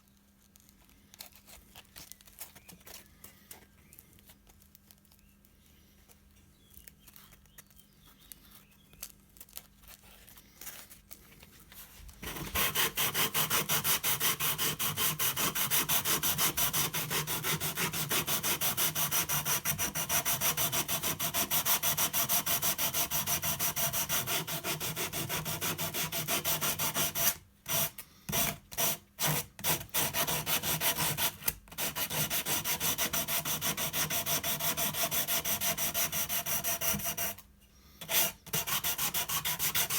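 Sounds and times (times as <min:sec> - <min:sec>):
wood being sanded: 0:12.2 - 0:37.4, 0:38.0 - 0:39.9.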